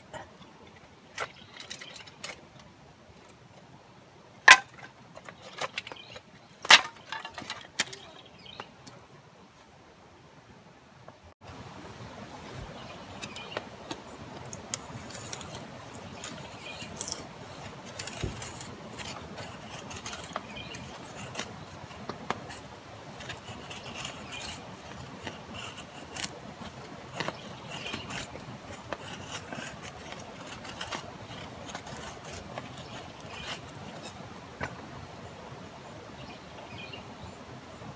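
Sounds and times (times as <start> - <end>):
clicks and small knocks: 4.4 - 8.0, 13.2 - 34.8.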